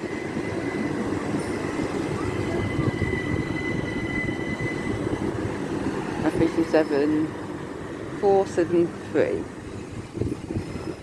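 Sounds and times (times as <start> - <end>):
thin high whine: 0.0 - 8.0
train wheels and motors rumbling: 0.0 - 11.0.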